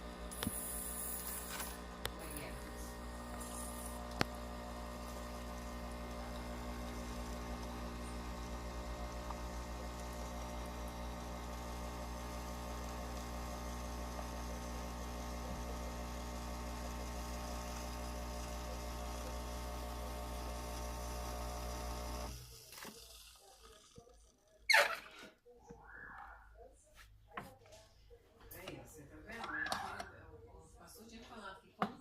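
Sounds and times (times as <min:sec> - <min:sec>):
espresso machine pump humming: 0:00.0 - 0:23.8.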